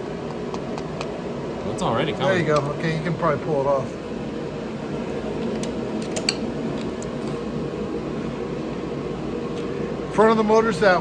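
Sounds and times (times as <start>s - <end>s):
fan humming: 0.0s - 11.0s.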